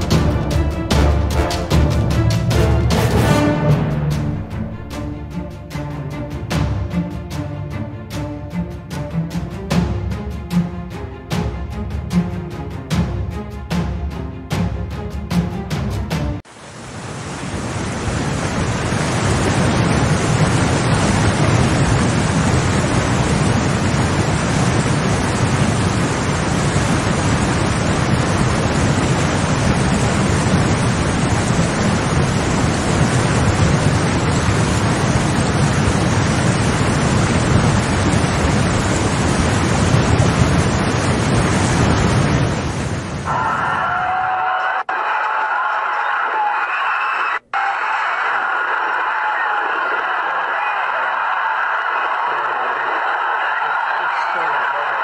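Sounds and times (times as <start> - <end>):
rush of flowing water: 16.5 - 44.0.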